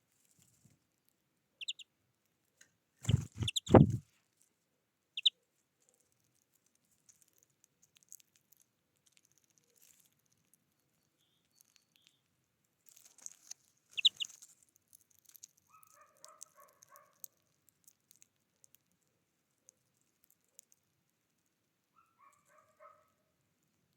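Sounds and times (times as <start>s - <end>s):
birds calling: 3.0s - 4.0s.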